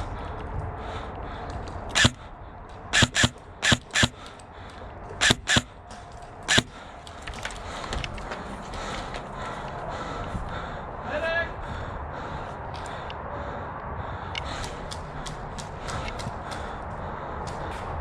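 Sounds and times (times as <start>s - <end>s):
airsoft gun shots: 1.9s - 2.2s, 3.0s - 4.2s, 5.2s - 5.8s, 6.5s - 6.8s.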